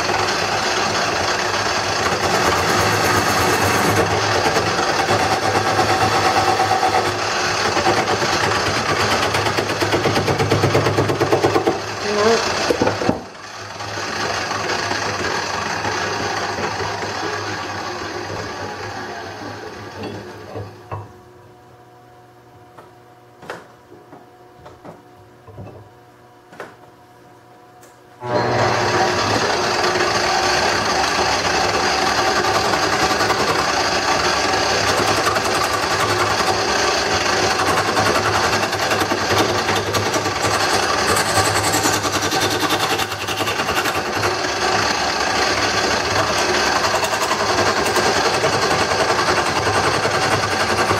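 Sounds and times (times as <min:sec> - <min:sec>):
lathe motor humming: 0:00.0 - 0:20.6, 0:28.2 - 0:50.9
turning tool scraping wood: 0:01.8 - 0:13.0, 0:28.3 - 0:50.9.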